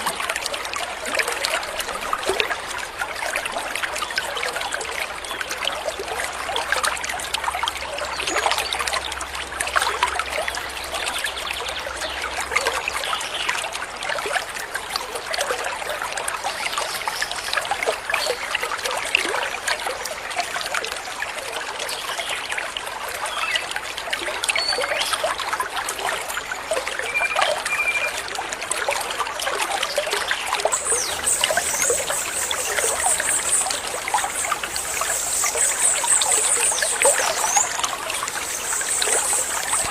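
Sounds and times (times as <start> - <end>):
stream trickling and babbling: 0.0 - 39.9
bird notes: 30.7 - 39.9.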